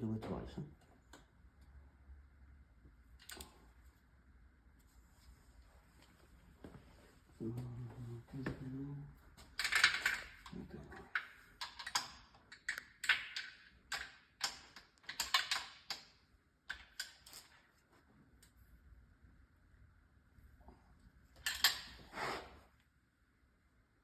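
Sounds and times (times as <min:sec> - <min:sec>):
sharp clicks and clatters: 0:09.5 - 0:17.6.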